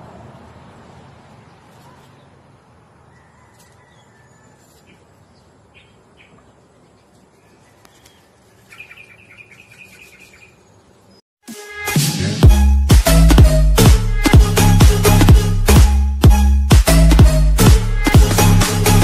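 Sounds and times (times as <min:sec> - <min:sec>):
outdoor background noise: 0:00.0 - 0:11.2
bird chirping: 0:01.4 - 0:11.2
loud dance music: 0:11.5 - 0:19.0.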